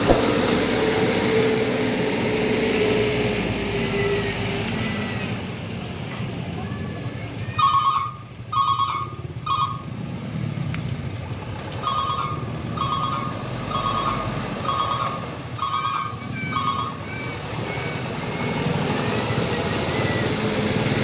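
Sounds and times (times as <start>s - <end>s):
truck engine running: 0.0s - 6.2s
reversing alarm beeps: 11.9s - 17.1s.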